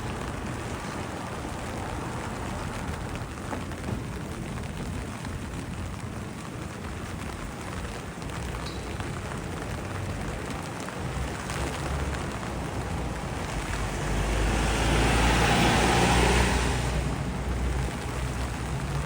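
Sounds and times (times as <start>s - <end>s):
vehicle passing close: 9.0s - 19.0s.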